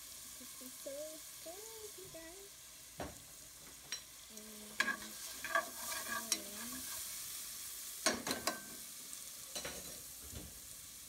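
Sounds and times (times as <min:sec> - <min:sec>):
vegetables sizzling in a pot: 0:00.0 - 0:11.0
spoon scraping a metal pot: 0:04.7 - 0:07.1.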